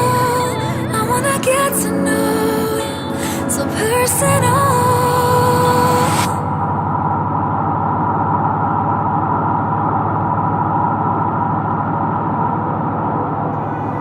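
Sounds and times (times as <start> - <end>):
car engine drone: 0.0 - 14.0
road and tyre noise: 6.0 - 14.0.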